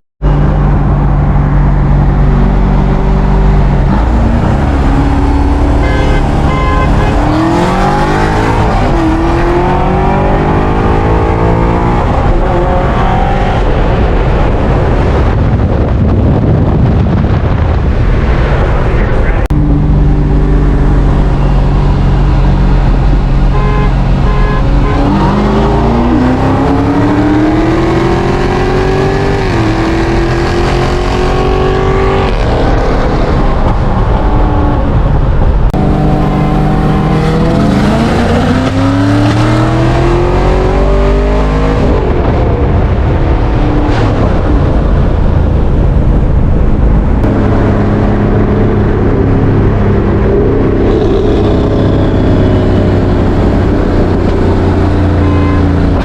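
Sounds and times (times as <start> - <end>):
car engine revving through gears: 1.8 - 13.7, 19.4 - 35.0, 35.6 - 44.8.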